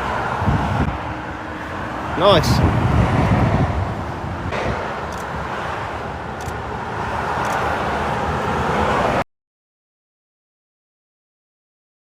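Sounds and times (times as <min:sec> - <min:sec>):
vehicle approaching: 0:00.0 - 0:09.2
motorway traffic: 0:00.0 - 0:09.3.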